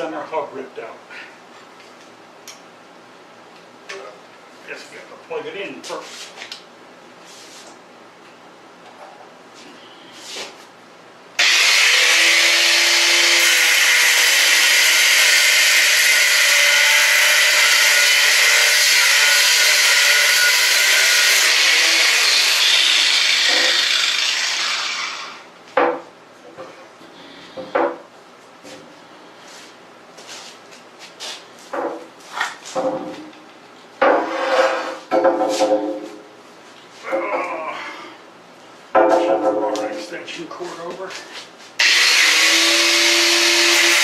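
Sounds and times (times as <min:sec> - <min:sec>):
grinder cutting steel: 0:11.4 - 0:25.5, 0:41.8 - 0:44.0.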